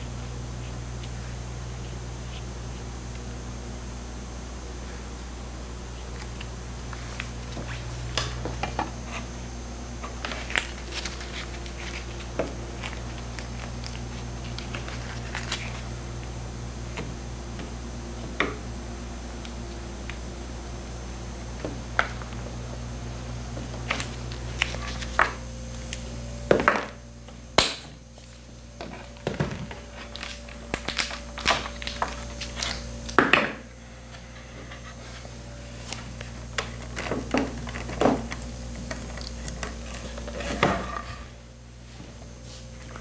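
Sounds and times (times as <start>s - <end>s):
low electrical hum: 0.0s - 43.0s
hand tools tapping and scraping: 26.4s - 41.3s.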